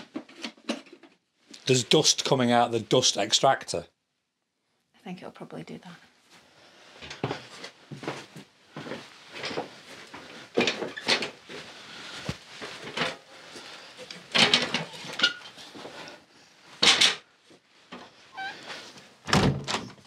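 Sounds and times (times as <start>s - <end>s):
hard objects clattering: 12.7s - 15.9s.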